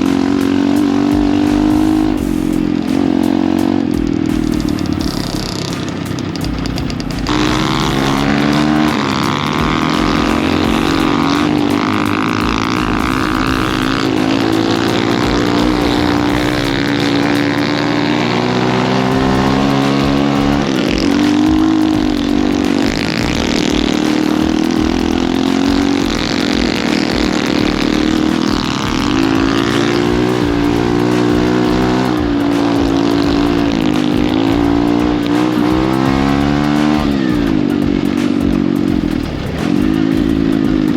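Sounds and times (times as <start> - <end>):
pit bike engine revving: 0.0 - 40.9.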